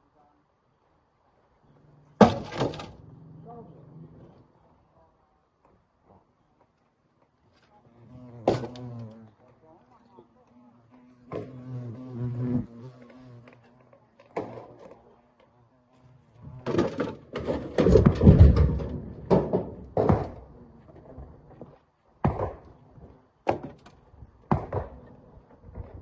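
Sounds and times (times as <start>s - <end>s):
rocks thudding into truck bed: 2.2s - 3.0s, 16.6s - 20.6s.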